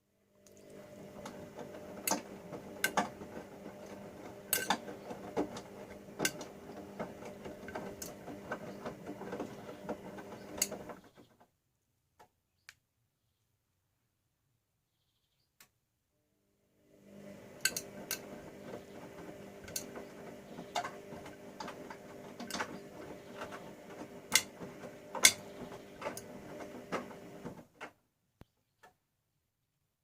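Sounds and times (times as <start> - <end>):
washing machine motor humming: 0.3 - 11.3, 16.8 - 27.9
laundry tumbling clicks and knocks: 0.7 - 11.4, 17.1 - 28.0.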